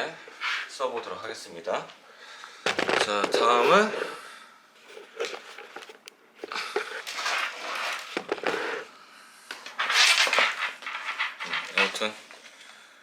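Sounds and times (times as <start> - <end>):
clothing and packaging rustling: 2.7 - 8.9, 9.5 - 12.6.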